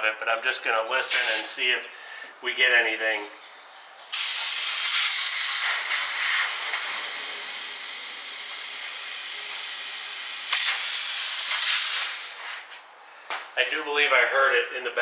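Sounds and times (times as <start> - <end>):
air hissing through fuel line: 1.1 - 12.7.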